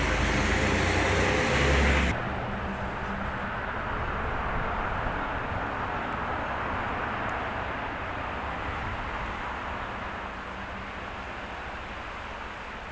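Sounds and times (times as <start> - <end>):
passing road vehicle rushing: 0.0 - 2.2.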